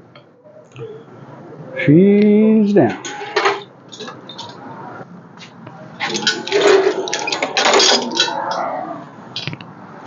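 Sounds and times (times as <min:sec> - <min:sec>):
metal gear scraping and rattling: 0:02.9 - 0:04.5, 0:06.0 - 0:08.7.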